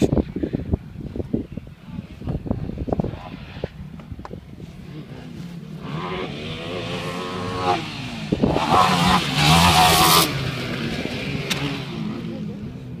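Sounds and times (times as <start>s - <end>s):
quad engine revving: 4.8s - 13.0s.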